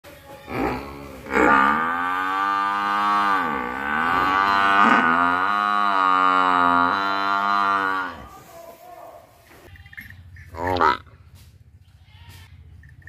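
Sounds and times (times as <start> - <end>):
buffalo mooing: 0.5 - 8.5, 9.7 - 11.2.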